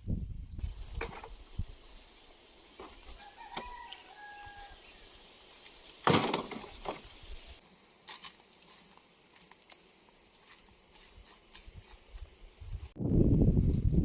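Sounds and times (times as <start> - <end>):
rooster crowing: 3.1 - 5.1
loud thump or rustle: 6.0 - 7.1.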